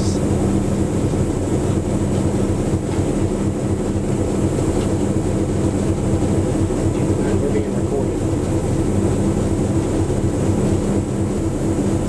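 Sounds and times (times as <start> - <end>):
diesel engine hum: 0.0 - 12.0
moving train rumble: 0.0 - 12.0.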